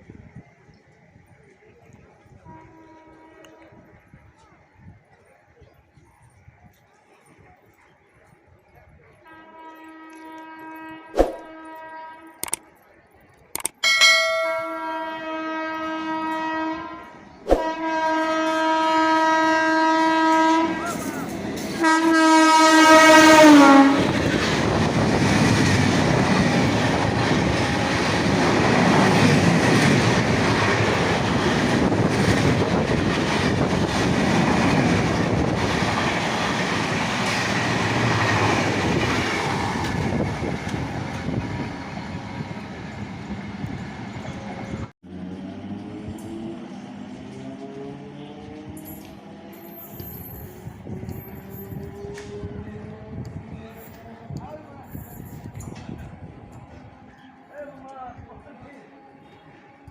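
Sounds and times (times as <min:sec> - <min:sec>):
train horn blasts: 0:02.4 - 0:03.9, 0:09.2 - 0:12.4, 0:13.8 - 0:21.2, 0:21.8 - 0:24.2
train rumbling past: 0:13.8 - 0:59.9.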